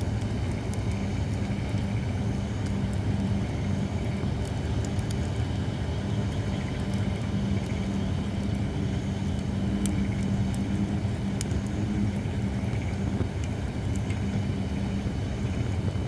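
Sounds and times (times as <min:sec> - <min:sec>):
campfire crackling pops: 0:00.1 - 0:05.6, 0:06.2 - 0:14.4.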